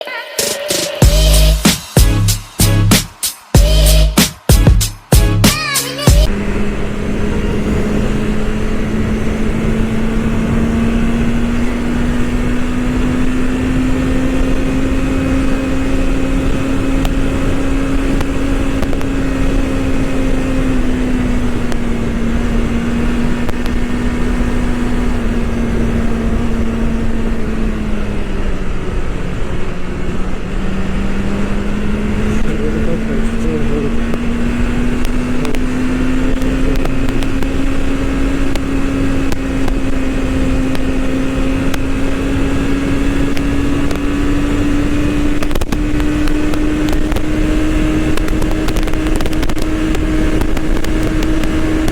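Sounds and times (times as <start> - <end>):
motorcycle engine running: 1.0 - 51.9
wind noise: 34.0 - 51.9.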